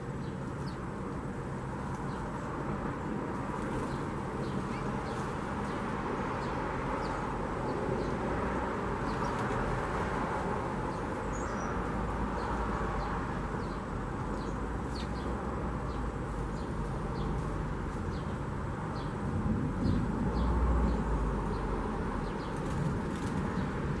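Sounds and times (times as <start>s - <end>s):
outdoor background hum: 0.0s - 24.0s
small birds chirping: 9.0s - 9.6s, 10.8s - 19.2s.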